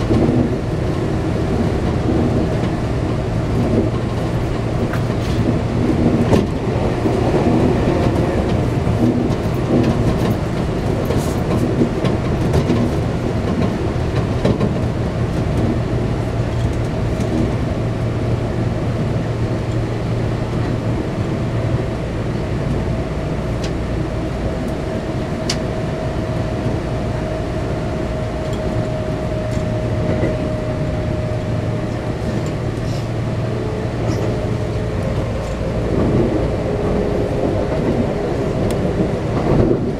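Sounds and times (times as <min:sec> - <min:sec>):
passing train: 0:00.0 - 0:39.9
rail joint clicks: 0:00.0 - 0:39.9
train wheels rumbling on rail: 0:00.0 - 0:39.9
train motor whine: 0:23.5 - 0:39.8.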